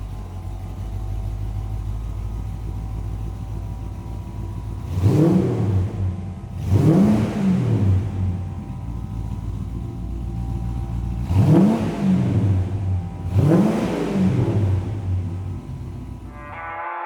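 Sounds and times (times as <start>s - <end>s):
pickup engine idling and revving: 0.0s - 16.5s.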